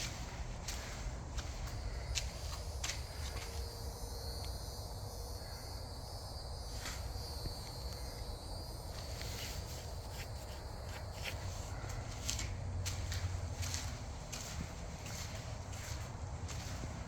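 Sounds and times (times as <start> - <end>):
steady low rumble: 0.0 - 3.5, 10.7 - 17.0
faint footsteps: 0.0 - 3.8, 8.9 - 17.0.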